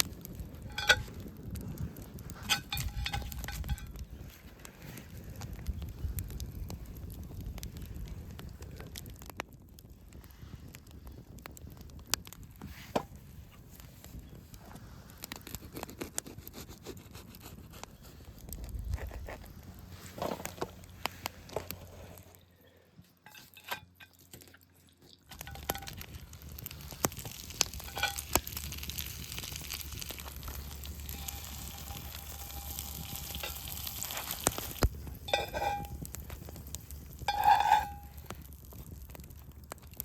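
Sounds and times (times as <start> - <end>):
food sizzling in a pan: 25.4 - 36.1.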